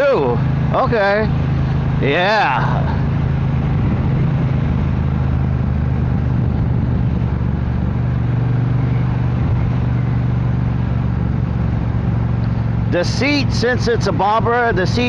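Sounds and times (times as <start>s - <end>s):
motorcycle engine running: 0.0s - 15.0s
wind rush: 2.7s - 9.9s.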